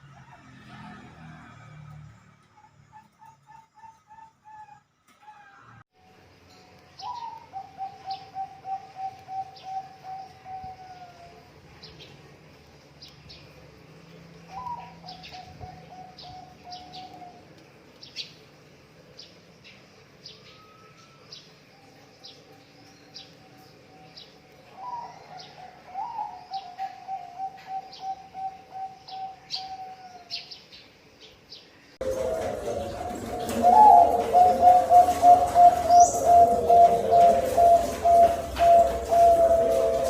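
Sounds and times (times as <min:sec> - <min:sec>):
small birds chirping: 0:06.8 - 0:40.0
dove cooing: 0:07.0 - 0:11.4, 0:14.5 - 0:17.5, 0:24.7 - 0:30.3, 0:32.0 - 0:40.0.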